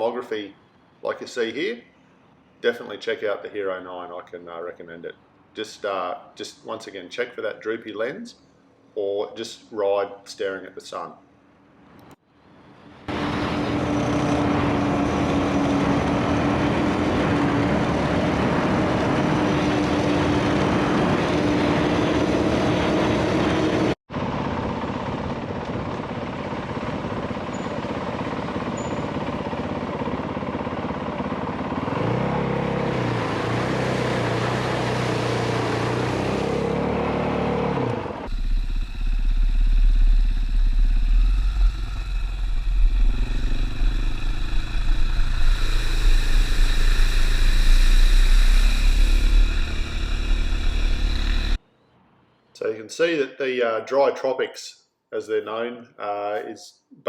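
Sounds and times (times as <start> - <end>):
road and wind noise: 11.9 - 51.6
heavy low rumble: 38.3 - 51.6.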